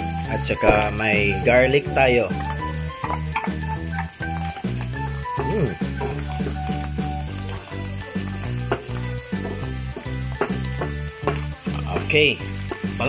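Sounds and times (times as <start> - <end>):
background music with steady beat: 0.0 - 13.0
vegetables sizzling in frying pan: 0.0 - 13.0.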